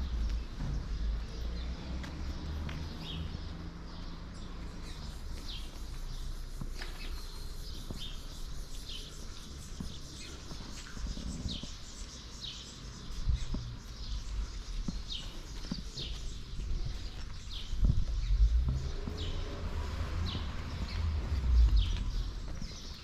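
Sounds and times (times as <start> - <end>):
bird chirping: 2.3 - 23.0
steady low rumble: 15.9 - 23.0.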